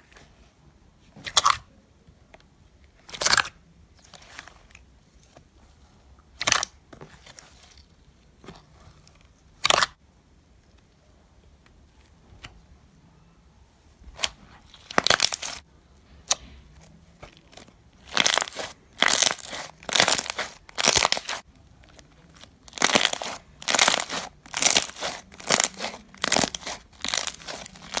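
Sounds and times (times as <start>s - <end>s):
crunchy slime squeezed by hand: 14.2s - 15.6s, 17.3s - 28.0s.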